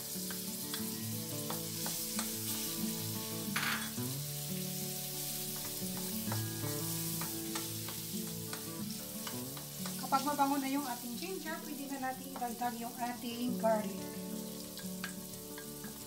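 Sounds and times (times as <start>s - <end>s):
ginger sizzling in butter: 0.0s - 16.0s
spatula scraping and tapping pan: 0.2s - 4.1s, 5.1s - 10.5s, 14.8s - 16.0s.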